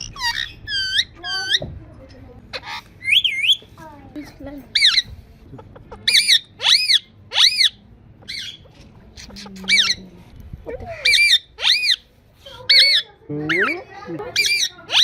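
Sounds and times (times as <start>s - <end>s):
parrot screeching: 0.0s - 1.6s, 6.0s - 8.7s, 11.0s - 15.0s.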